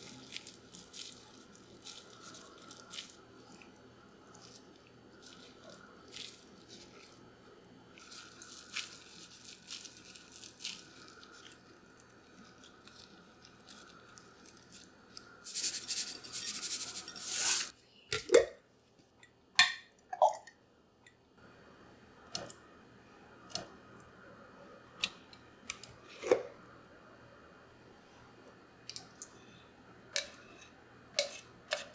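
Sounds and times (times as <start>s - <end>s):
objects being moved: 15.5s - 17.7s.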